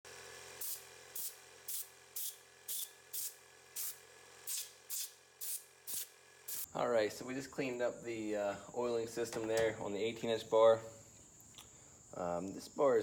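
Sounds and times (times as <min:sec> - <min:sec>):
short hissing spray blasts: 0:00.6 - 0:06.7.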